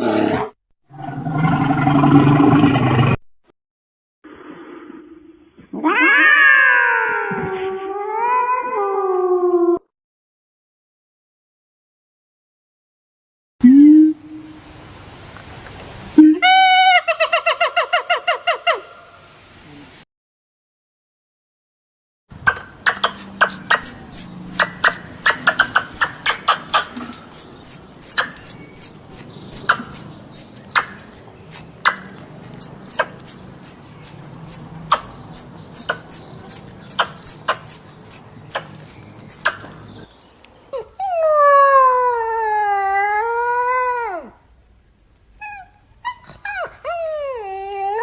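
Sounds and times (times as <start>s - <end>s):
animal clicking and chirping: 22.4s - 40.1s
dog howling: 23.1s - 39.5s.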